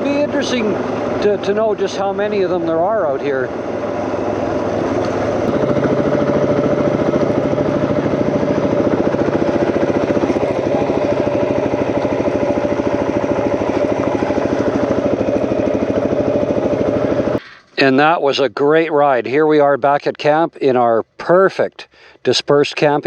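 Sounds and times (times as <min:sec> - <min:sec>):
off-road vehicle engine running: 0:00.0 - 0:21.4.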